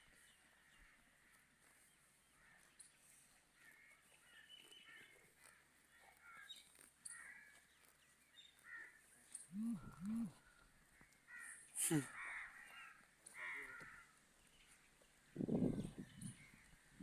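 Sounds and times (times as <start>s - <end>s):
faint bird chirps: 8.3s - 16.8s.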